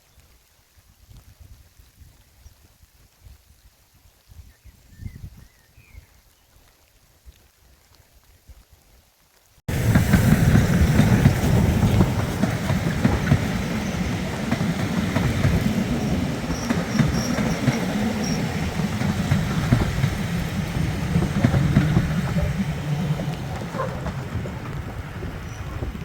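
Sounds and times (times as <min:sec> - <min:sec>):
train rumbling along track: 0:09.7 - 0:26.0.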